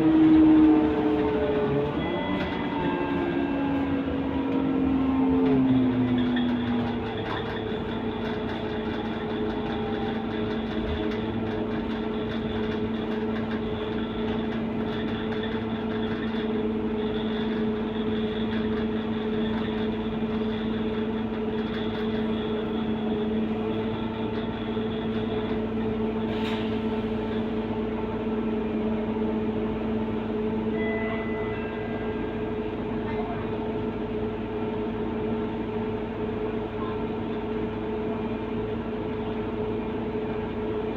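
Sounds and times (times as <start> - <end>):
diesel bus engine idling: 0.0 - 30.7.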